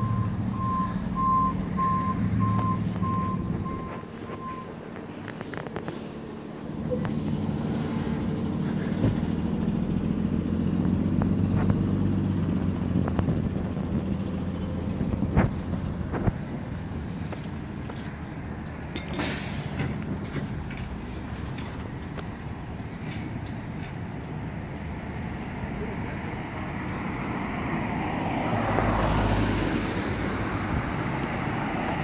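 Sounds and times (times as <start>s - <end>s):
heavy vehicle engine running: 0.0s - 32.0s
air brake hiss: 19.1s - 19.8s.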